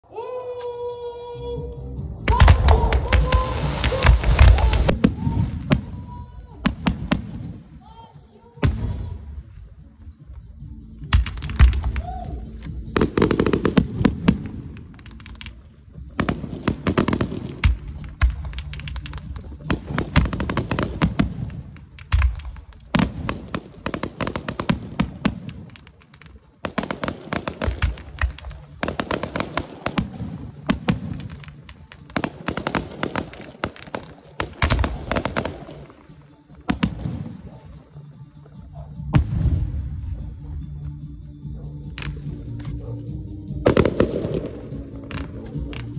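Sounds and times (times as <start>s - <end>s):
fireworks booms: 2.3s - 7.8s, 12.9s - 36.0s
fireworks crackling: 2.3s - 7.8s, 11.1s - 38.5s.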